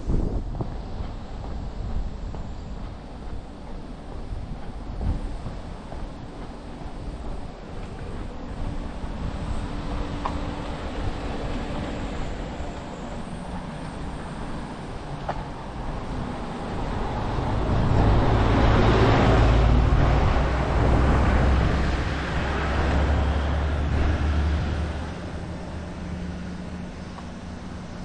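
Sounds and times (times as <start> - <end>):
vehicle passing on road: 8.9 - 28.0.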